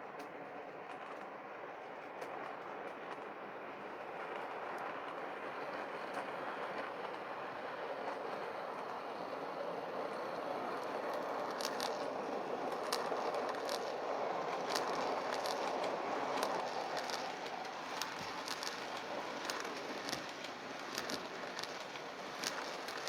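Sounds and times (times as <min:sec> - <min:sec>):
wheels clicking over rail joints: 0:04.7 - 0:23.0
model train motor whirring: 0:07.9 - 0:23.0.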